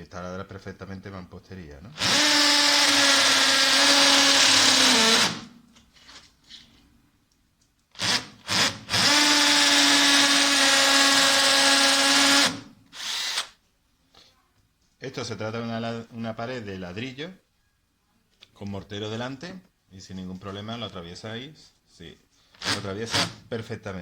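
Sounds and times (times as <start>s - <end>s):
hammer drill drilling into brick: 2.0s - 5.5s, 8.0s - 13.5s.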